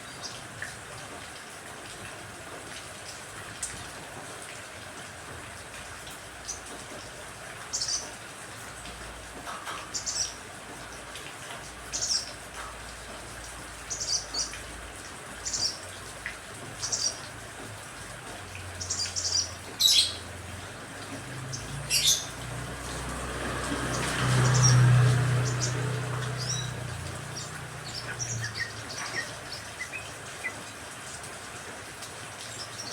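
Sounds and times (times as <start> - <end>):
rain hissing: 3.7 - 32.9
small birds chirping: 9.9 - 10.4, 13.8 - 14.7, 15.4 - 16.0, 16.8 - 17.3, 18.7 - 20.3, 21.4 - 30.7.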